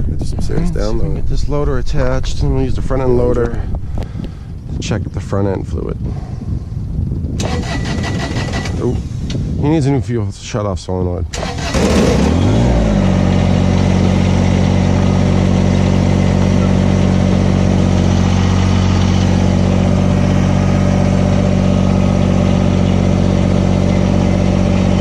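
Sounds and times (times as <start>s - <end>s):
diesel engine revving up: 7.4s - 9.3s, 11.3s - 25.0s.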